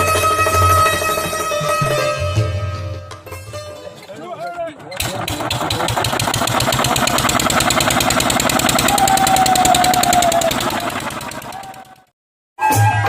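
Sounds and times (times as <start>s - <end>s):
diesel engine running: 5.0s - 12.1s
steady whistle-like tone: 8.7s - 12.0s.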